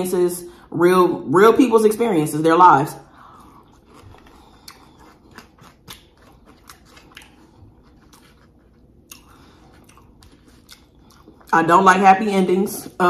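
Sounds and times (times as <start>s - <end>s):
close-miked chewing: 3.1s - 11.9s.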